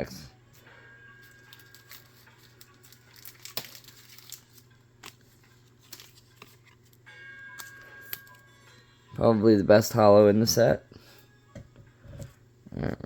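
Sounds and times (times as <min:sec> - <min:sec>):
wrapper crinkling: 0:01.2 - 0:07.0.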